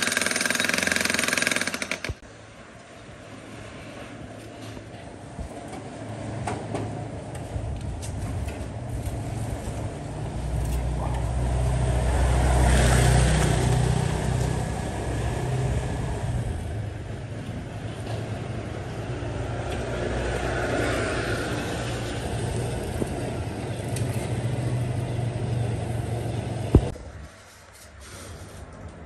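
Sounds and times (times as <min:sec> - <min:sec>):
steady traffic noise: 0:00.0 - 0:29.0
vehicle passing with low rumble: 0:07.0 - 0:27.3.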